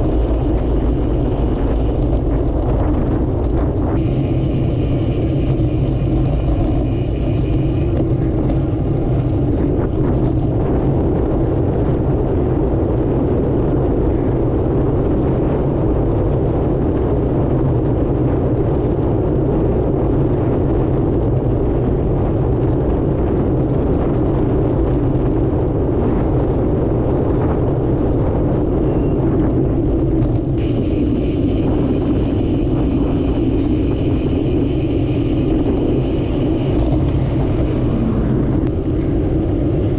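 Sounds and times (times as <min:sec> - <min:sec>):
faint high whine: 0:00.0 - 0:10.5, 0:28.8 - 0:29.4, 0:30.6 - 0:39.9
wind and road noise: 0:00.0 - 0:39.9.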